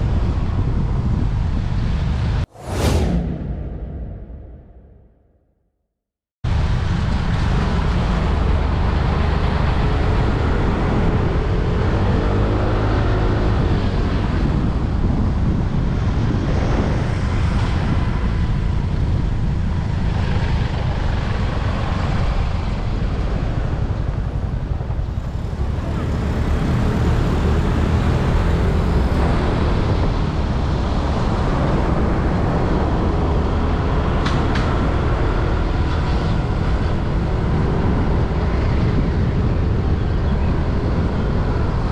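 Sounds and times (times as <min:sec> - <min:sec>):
wind and road noise: 0:00.0 - 0:05.2, 0:06.4 - 0:41.9
motorbike engine rumble: 0:21.5 - 0:33.1.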